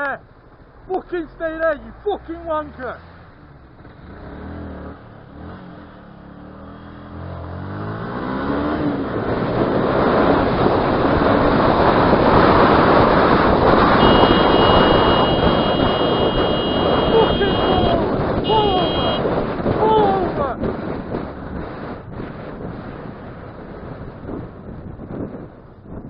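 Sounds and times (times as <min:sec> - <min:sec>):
wind and road noise: 0:00.0 - 0:26.0
motorcycle engine accelerating: 0:03.2 - 0:22.4.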